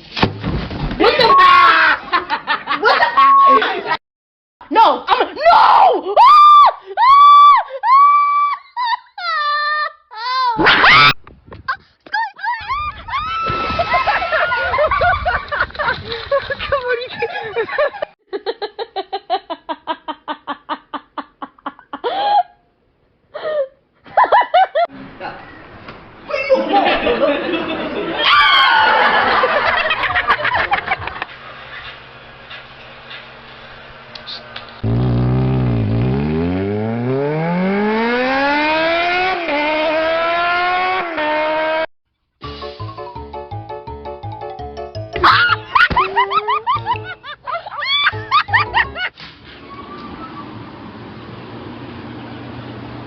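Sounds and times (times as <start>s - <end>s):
vehicle engine revving: 31.0s - 41.9s, 49.6s - 53.0s.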